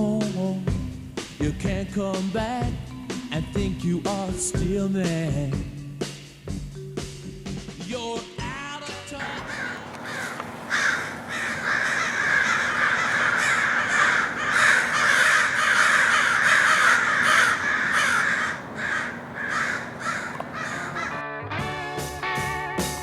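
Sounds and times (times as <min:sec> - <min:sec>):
flock of birds chattering: 0:09.2 - 0:21.2.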